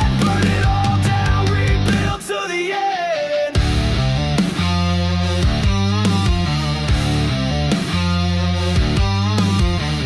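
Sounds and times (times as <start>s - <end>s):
drum hits: 0.0s - 2.2s
distorted electric guitar chords: 0.0s - 2.3s, 3.5s - 10.0s.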